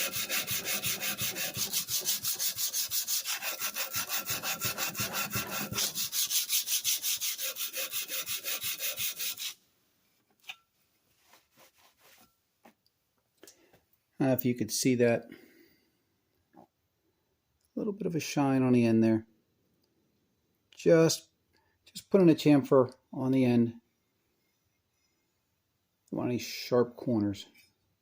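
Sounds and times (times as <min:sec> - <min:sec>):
metal plane rasping on sandpaper: 0:00.0 - 0:09.6.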